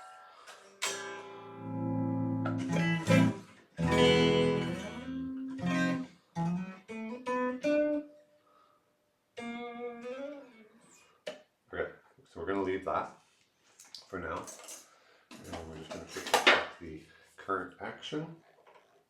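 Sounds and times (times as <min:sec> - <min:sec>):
electric guitar playing: 0:00.0 - 0:08.1, 0:09.4 - 0:10.8.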